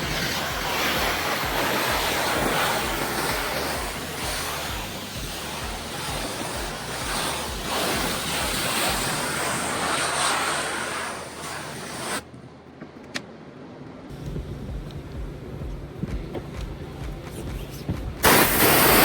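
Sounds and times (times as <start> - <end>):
pressure washer water spray: 0.0 - 12.3, 18.2 - 19.0.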